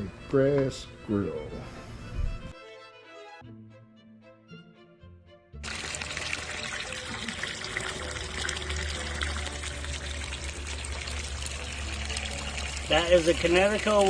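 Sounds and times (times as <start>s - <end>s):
water rushing out: 5.6s - 14.0s.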